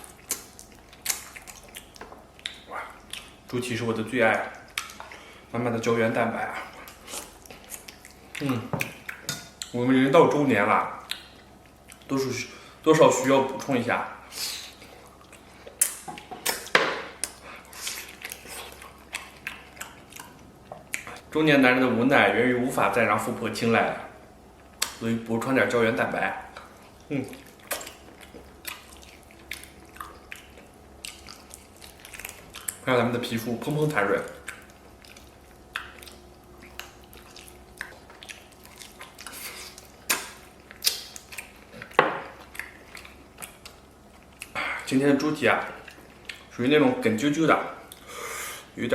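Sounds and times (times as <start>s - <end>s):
biting and chewing: 0.0s - 3.5s, 14.8s - 21.3s, 26.5s - 44.6s
sticky mouth smacks and clicks: 34.2s - 44.6s.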